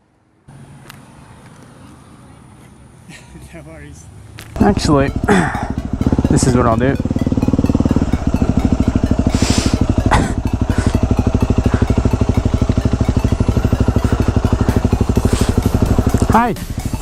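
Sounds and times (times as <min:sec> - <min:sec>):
motorcycle engine idling: 0:04.5 - 0:17.0.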